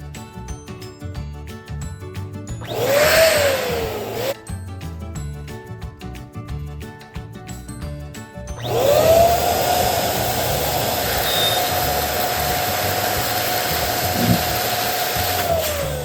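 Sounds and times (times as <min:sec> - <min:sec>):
electric balloon inflator motor: 0:02.6 - 0:04.4, 0:08.6 - 0:16.0.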